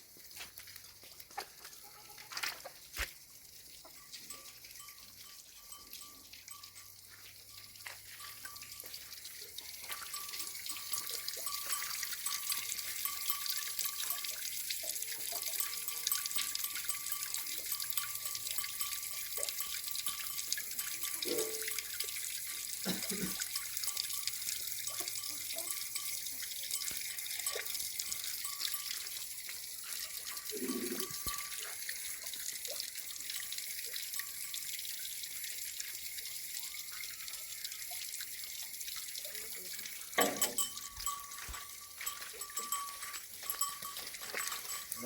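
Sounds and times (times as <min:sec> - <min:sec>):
running water splashing: 0:00.0 - 0:45.0.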